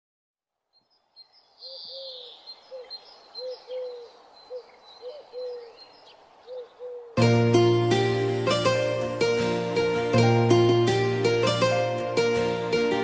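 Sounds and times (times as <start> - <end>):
high bird chirps and trills: 0.8 - 7.2
bird hooting: 1.6 - 7.2.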